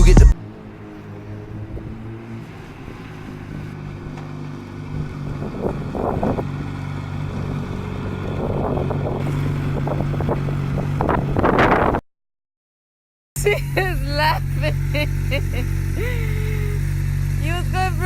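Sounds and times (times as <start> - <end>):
motorcycle engine running: 0.0 - 12.0, 13.4 - 18.0
wind on microphone: 4.9 - 6.5, 7.3 - 12.0.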